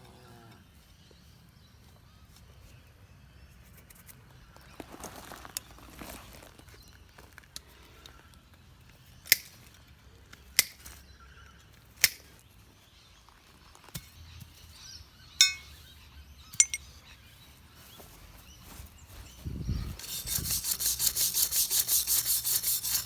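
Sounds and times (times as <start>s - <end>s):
sharp metal knocks and clinks: 15.4s - 15.8s, 16.5s - 16.9s.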